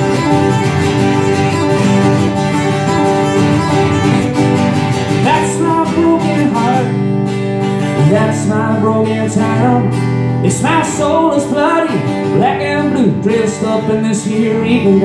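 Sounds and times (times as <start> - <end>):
live band music: 0.0 - 5.7
guitar bending melody: 0.0 - 15.0.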